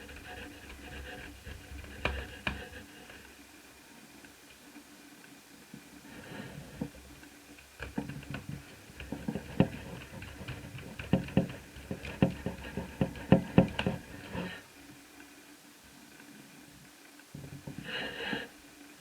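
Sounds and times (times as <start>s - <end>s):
laptop parts clicking and tapping: 7.8s - 14.5s.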